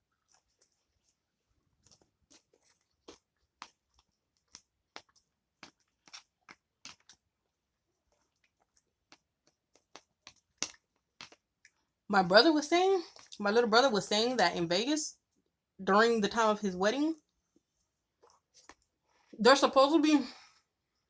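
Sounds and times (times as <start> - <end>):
person chewing crunchy food: 0.0 - 7.3, 8.0 - 11.8.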